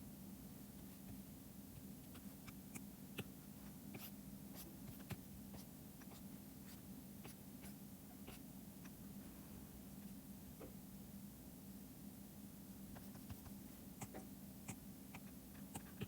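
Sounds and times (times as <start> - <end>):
stylus tapping and scratching: 12.9 - 16.0.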